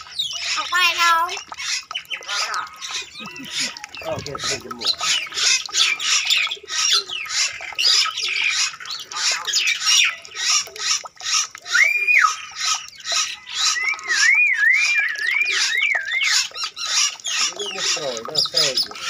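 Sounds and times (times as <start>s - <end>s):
birds squawking chirps: 0.0s - 19.0s
warbling bird whistle: 11.3s - 19.0s
held bird whistle: 11.6s - 12.4s, 13.5s - 16.4s.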